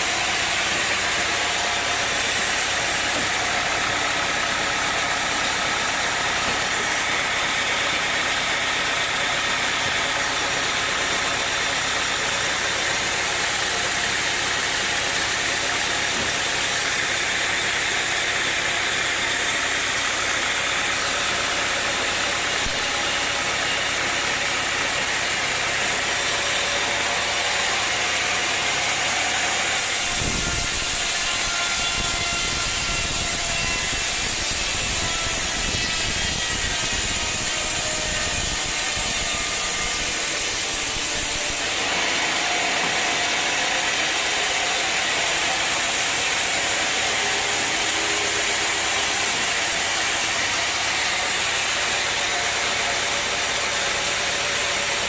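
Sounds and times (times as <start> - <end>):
sawmill engine running: 0.0 - 55.0.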